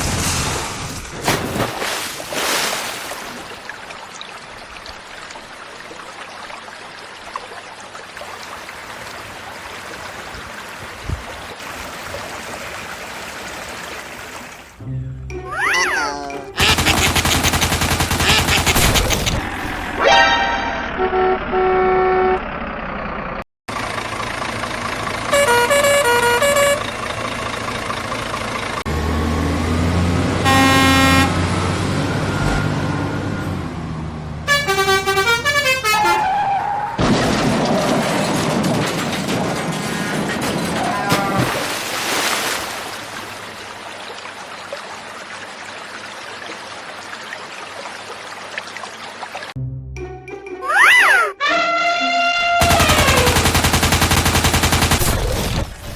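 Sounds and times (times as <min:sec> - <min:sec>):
vehicle noise: 0:00.0 - 0:01.4, 0:07.8 - 0:44.0, 0:49.5 - 0:55.9
running water: 0:01.3 - 0:19.5, 0:40.8 - 0:49.6
deep engine rumble: 0:14.8 - 0:15.6, 0:20.7 - 0:35.4
truck horns honking: 0:19.8 - 0:23.0, 0:25.1 - 0:27.2, 0:29.9 - 0:37.0, 0:49.6 - 0:53.4
horn playing alternating notes: 0:25.3 - 0:26.8, 0:30.4 - 0:31.4, 0:34.5 - 0:36.2, 0:51.3 - 0:53.3.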